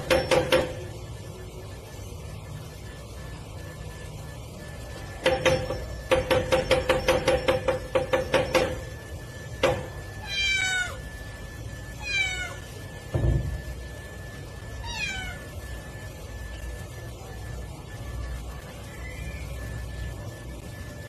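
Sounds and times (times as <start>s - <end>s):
cat meowing: 10.2s - 11.0s, 12.0s - 12.7s, 14.8s - 15.5s.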